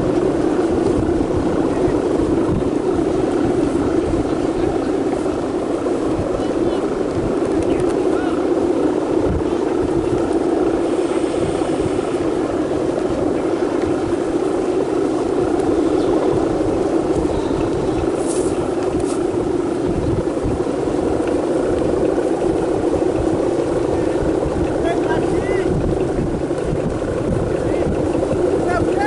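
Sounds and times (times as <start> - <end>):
kite hummer drone: 0.0 - 29.0
wind buffeting microphone: 0.0 - 29.0.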